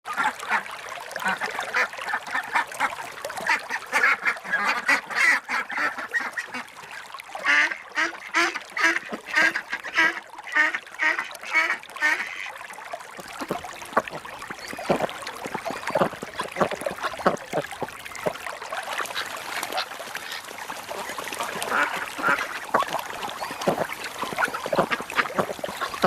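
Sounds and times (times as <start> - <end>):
ducks quacking: 13.2 - 26.0.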